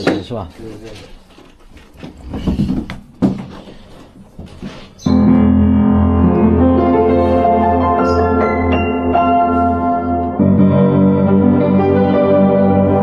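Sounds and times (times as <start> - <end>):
piano music: 5.1 - 13.0.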